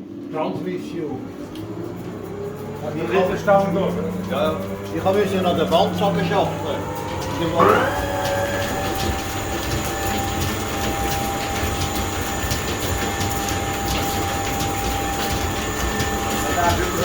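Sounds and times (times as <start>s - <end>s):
machinery whine: 0.4s - 17.0s
mechanical rumble: 0.7s - 17.0s
rapid mechanical clicking: 1.0s - 17.0s.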